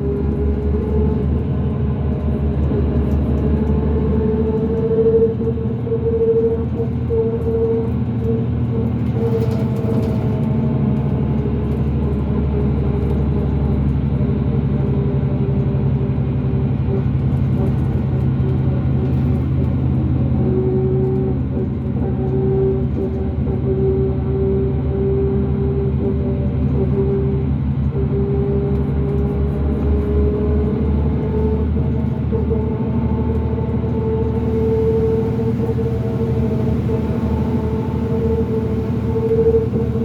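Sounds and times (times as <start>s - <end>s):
bus diesel engine droning: 0.0s - 40.0s
steady whine: 31.2s - 40.0s.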